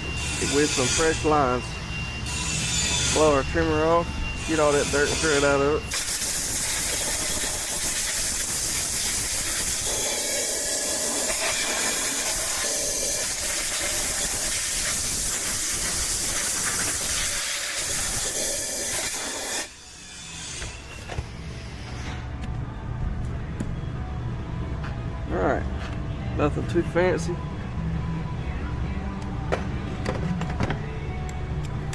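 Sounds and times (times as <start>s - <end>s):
compressed air blow gun hissing: 5.9s - 19.7s.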